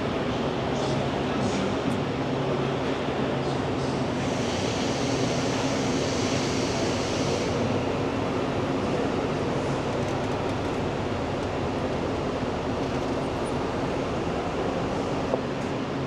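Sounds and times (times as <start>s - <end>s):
passenger train rumbling: 0.0s - 16.0s
hiss: 4.2s - 7.6s.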